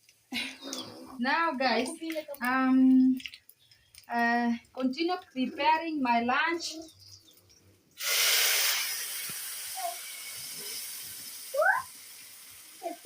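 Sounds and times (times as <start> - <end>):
steam hissing from pot: 8.0 - 13.0.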